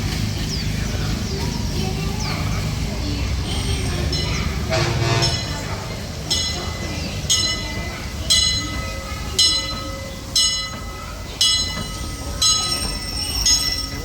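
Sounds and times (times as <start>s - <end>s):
steam train rumbling: 0.0s - 14.0s
bell ringing: 6.3s - 14.0s.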